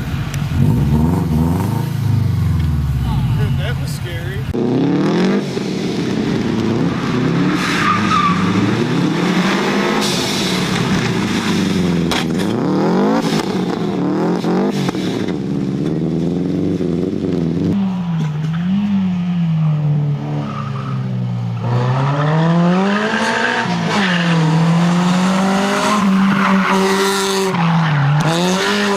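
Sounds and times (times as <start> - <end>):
car engine revving hard: 0.5 - 2.5, 4.4 - 17.8, 21.6 - 28.9.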